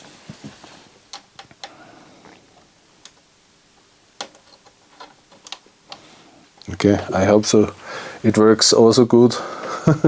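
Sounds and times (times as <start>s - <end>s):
clicks and taps of small parts: 4.2s - 6.0s.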